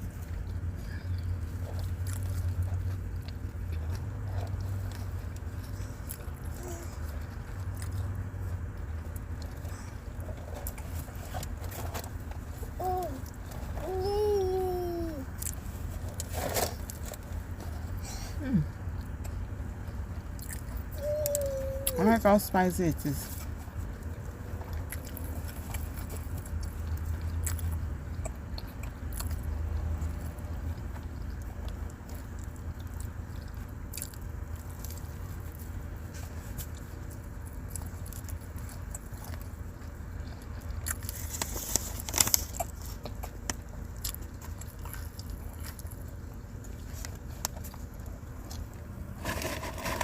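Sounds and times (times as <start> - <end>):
person chewing crunchy food: 0.0 - 14.0, 15.2 - 22.1, 23.5 - 50.0
moving car rumble: 0.0 - 50.0.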